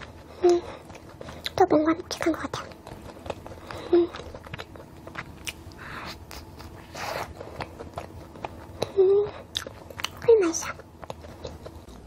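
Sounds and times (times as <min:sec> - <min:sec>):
wet mouth clicks and smacks: 0:04.4 - 0:06.7.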